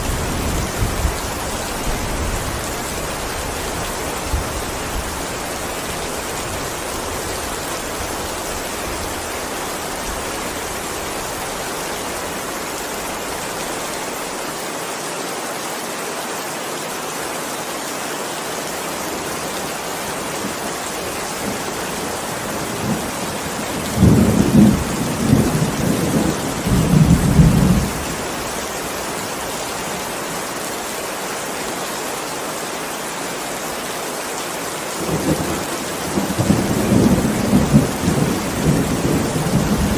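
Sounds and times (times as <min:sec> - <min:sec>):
heavy rain: 0:00.0 - 0:39.9
low thunder rumbling: 0:22.4 - 0:28.0, 0:35.0 - 0:39.9.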